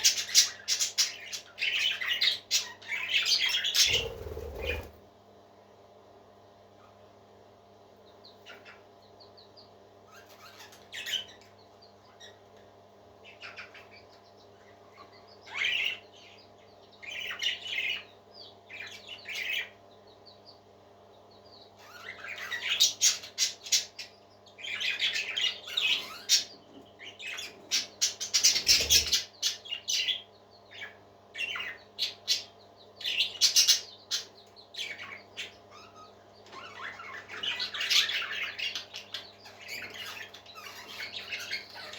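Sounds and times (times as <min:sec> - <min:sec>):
parrot squawking and chirping: 0:02.6 - 0:04.9
steady low hum: 0:03.6 - 0:10.0.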